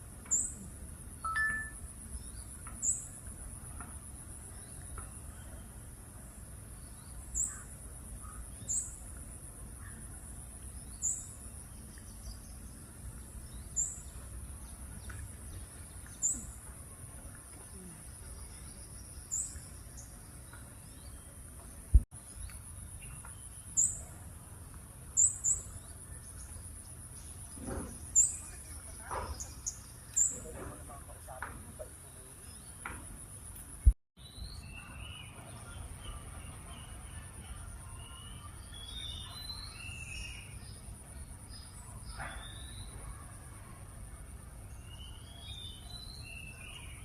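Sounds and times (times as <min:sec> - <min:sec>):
short high chirps: 0:01.2 - 0:01.8.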